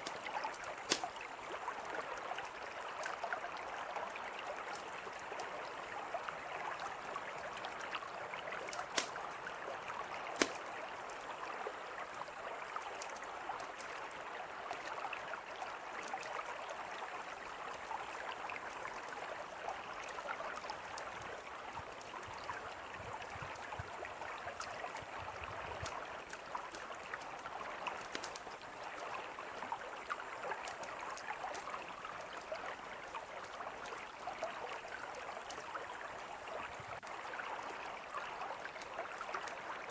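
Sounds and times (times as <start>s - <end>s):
campfire crackling: 0.0s - 1.6s, 7.3s - 15.0s, 25.4s - 34.0s
mountain river flowing: 0.0s - 39.9s
sharp fire pops: 0.9s - 1.2s, 8.8s - 9.2s, 10.4s - 10.6s.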